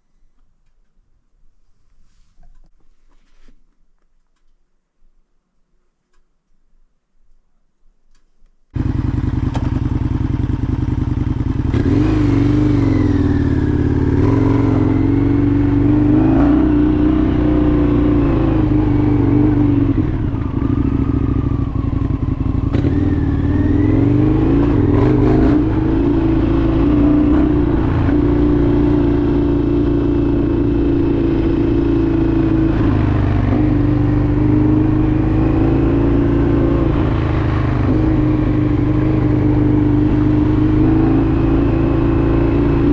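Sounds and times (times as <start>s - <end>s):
motorcycle engine revving: 8.8s - 42.9s.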